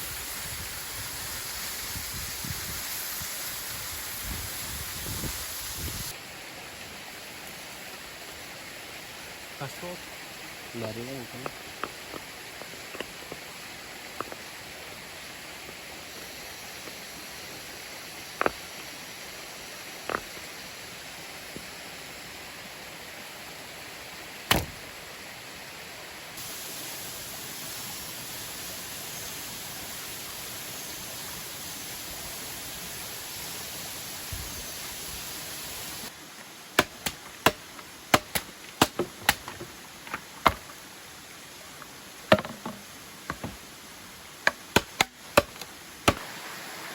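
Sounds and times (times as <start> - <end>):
sharp knocks: 42.3 - 43.6
waterfall rushing: 44.7 - 46.9.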